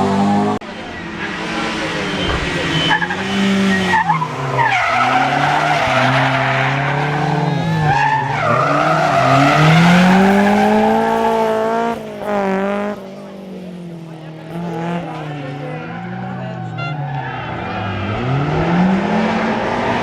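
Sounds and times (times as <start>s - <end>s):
rally car engine revving: 0.0s - 20.0s
tyres squealing: 0.9s - 11.3s.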